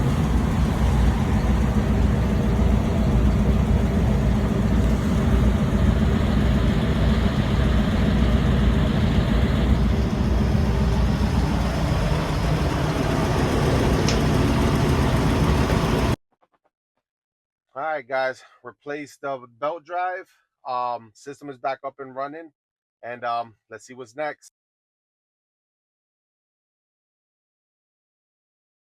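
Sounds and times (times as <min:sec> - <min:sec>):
furnace blower running: 0:00.0 - 0:16.2.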